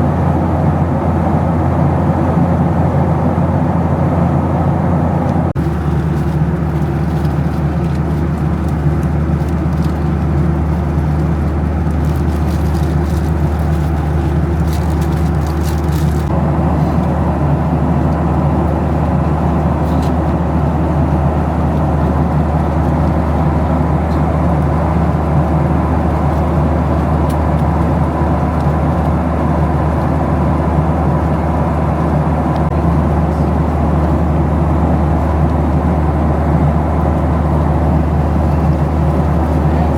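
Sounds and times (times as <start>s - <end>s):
airplane cabin drone: 0.0s - 39.9s.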